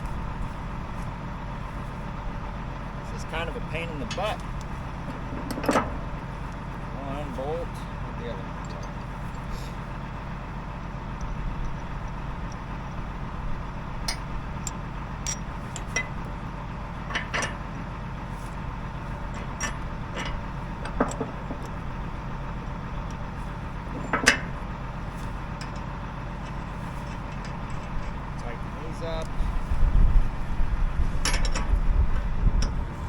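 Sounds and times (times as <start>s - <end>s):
low engine hum: 0.0s - 33.0s
hand tools clinking on metal: 3.1s - 4.6s, 14.1s - 16.3s, 17.1s - 17.6s, 23.9s - 29.3s.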